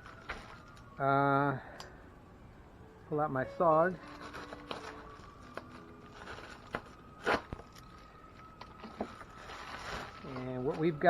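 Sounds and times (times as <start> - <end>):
faint scraping and crunching clicks: 4.0 - 10.9
knife cutting open package: 4.1 - 7.8.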